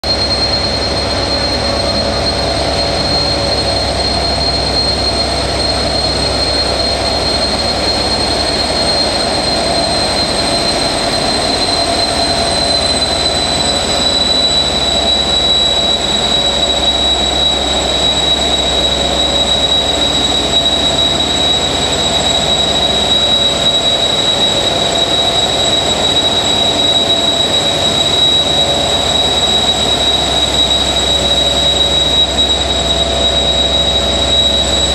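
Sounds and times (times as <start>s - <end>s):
diesel locomotive engine idling: 0.0s - 34.9s
turbocharger whistle: 0.0s - 34.9s.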